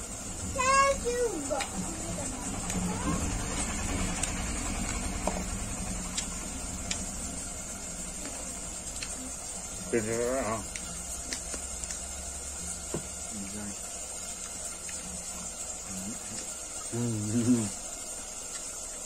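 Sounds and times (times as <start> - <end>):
chewing: 8.1 - 12.4, 18.4 - 18.7
person humming: 16.9 - 17.8.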